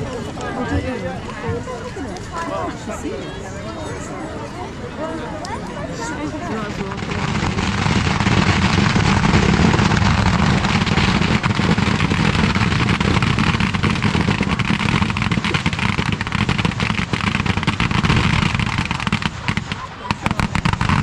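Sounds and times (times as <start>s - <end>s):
fireworks crackling and rumbling: 6.0s - 21.0s.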